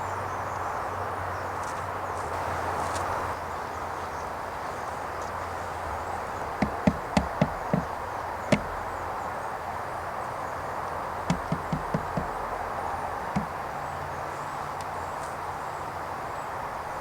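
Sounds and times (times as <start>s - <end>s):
steady outdoor hiss: 0.0s - 17.0s
quick sharp knocks: 6.6s - 8.9s, 11.3s - 12.6s, 13.3s - 13.6s.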